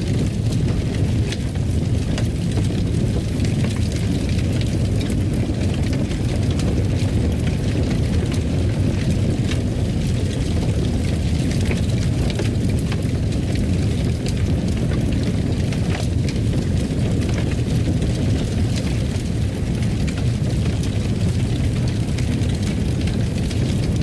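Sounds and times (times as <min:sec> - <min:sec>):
low fire rumble: 0:00.0 - 0:24.0
wood fire crackling: 0:00.0 - 0:24.0.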